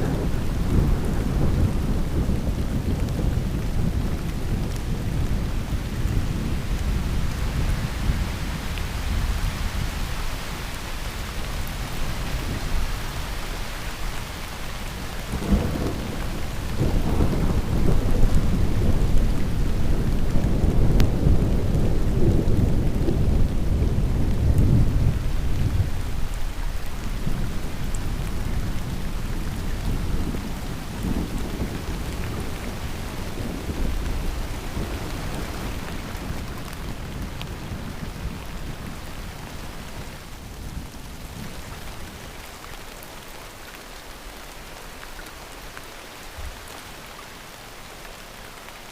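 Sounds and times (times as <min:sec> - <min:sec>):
rolling thunder: 0:00.0 - 0:08.2, 0:15.3 - 0:26.2
heavy rain hiss: 0:00.0 - 0:48.9.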